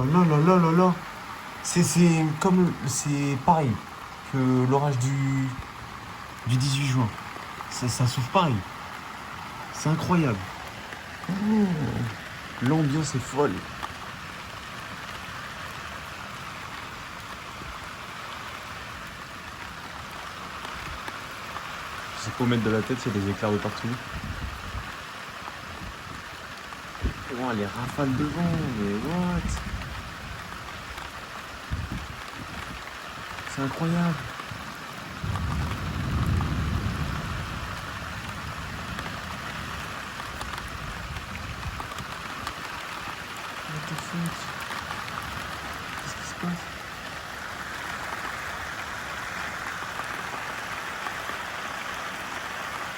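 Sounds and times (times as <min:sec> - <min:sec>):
heavy rain pouring: 0:00.0 - 0:52.9
deep thunder rumble: 0:35.2 - 0:39.9.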